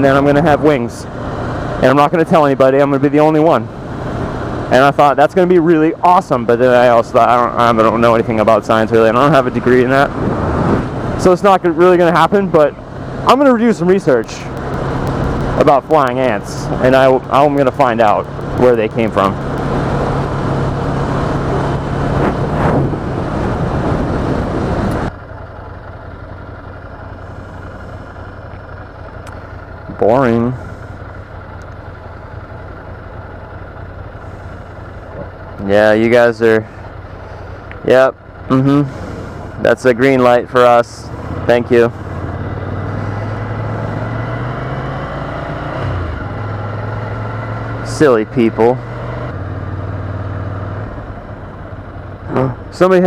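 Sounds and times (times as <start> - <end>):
motorcycle engine running: 0.0 - 53.0
motorcycle engine pulling away: 12.8 - 23.5, 41.0 - 52.7
wind noise on microphone: 22.0 - 25.1.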